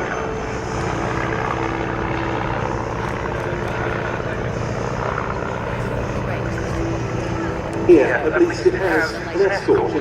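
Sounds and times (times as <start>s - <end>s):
propeller plane engine drone: 0.0s - 10.0s.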